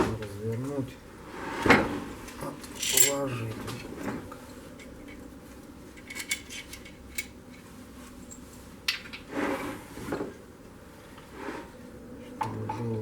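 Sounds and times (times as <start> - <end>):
light metallic clinks and knocks: 2.7 - 3.4, 5.9 - 7.6.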